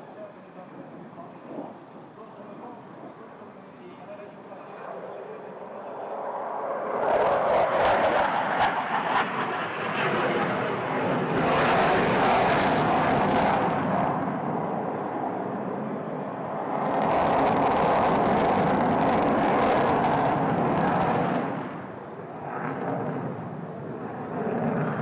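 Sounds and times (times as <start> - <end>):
fighter jet engine roar: 4.2 - 25.0.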